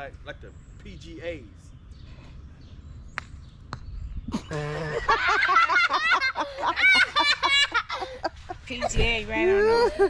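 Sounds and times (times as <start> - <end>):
people shrieking and laughing: 4.9 - 8.6.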